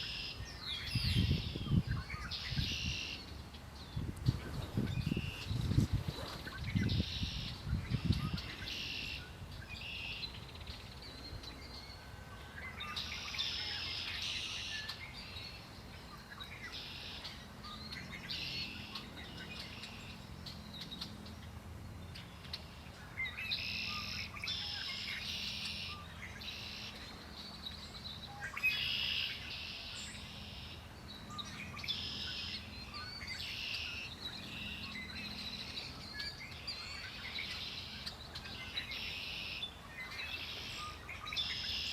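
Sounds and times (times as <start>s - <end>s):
songbirds singing: 0.0s - 41.9s.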